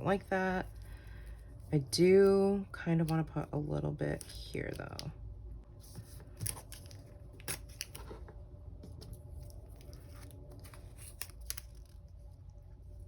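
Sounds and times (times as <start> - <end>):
faint paper rustling: 5.8 - 13.0
stickers being peeled: 6.3 - 8.1, 9.0 - 12.6.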